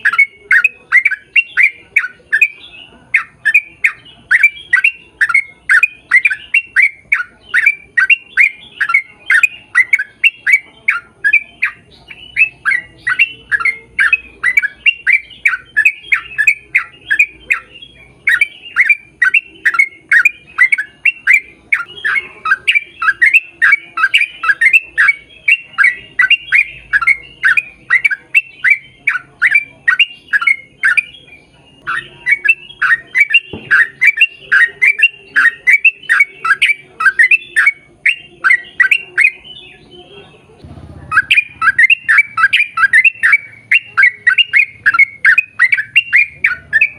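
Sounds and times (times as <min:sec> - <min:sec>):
bird squawking: 0:00.0 - 0:46.9.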